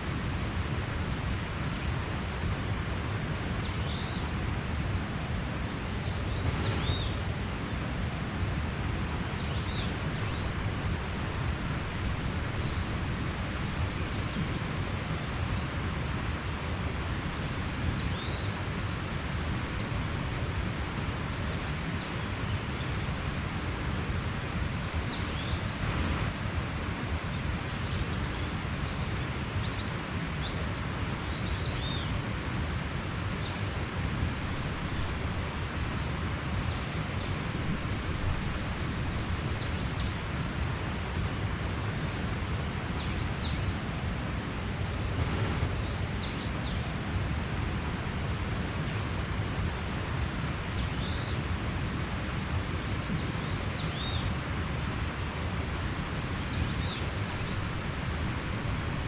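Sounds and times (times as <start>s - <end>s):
mountain stream rushing: 0.0s - 59.0s
small birds chirping: 34.4s - 43.9s, 44.7s - 49.4s, 52.8s - 54.5s.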